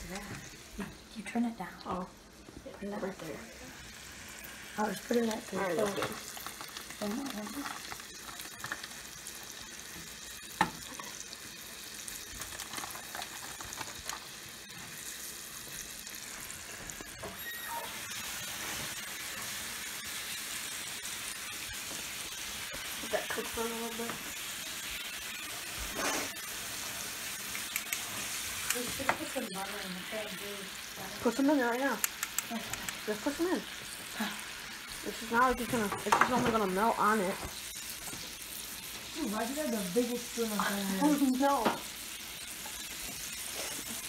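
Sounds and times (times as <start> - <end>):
meat sizzling in a skillet: 0.0 - 44.0
metal tongs clicking on pan: 27.5 - 29.2, 32.0 - 33.1.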